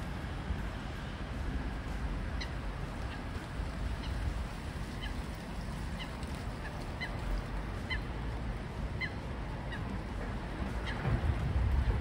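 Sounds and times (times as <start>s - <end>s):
bird calling: 7.8s - 8.1s, 9.0s - 9.9s
low rumble: 10.1s - 12.0s.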